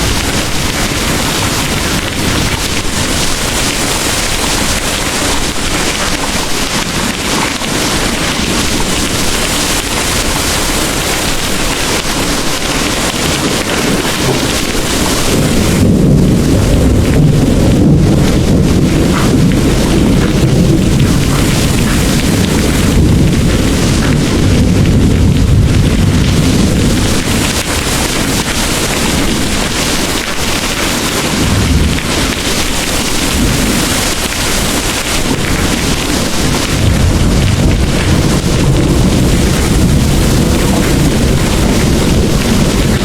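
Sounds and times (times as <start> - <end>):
deep rumble of thunder: 0.0 - 43.0
heavy rain pouring: 0.0 - 43.0.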